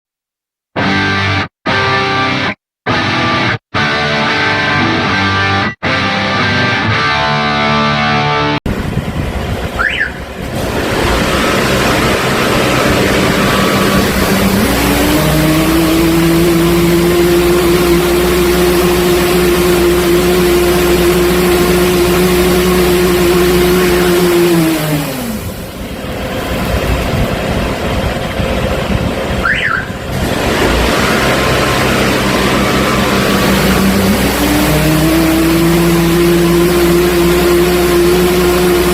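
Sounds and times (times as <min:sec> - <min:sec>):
machine engine running: 0:08.7 - 0:38.9
water jet hissing: 0:30.1 - 0:38.9.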